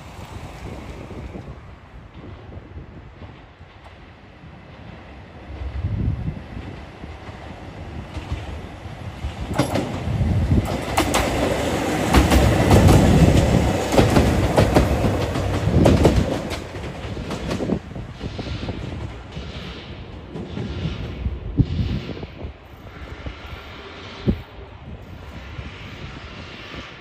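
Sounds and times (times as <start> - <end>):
train wheels clicking over joints: 6.6 - 24.0.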